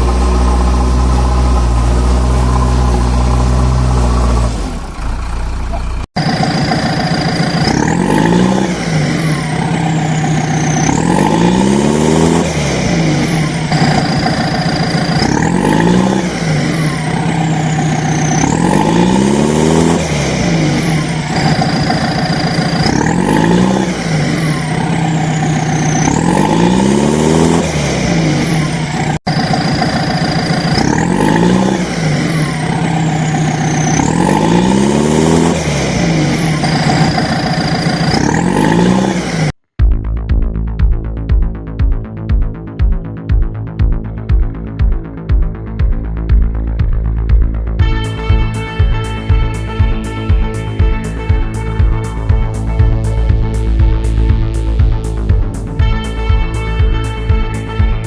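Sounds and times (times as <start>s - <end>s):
electronic toy engine sound: 0.0s - 39.5s.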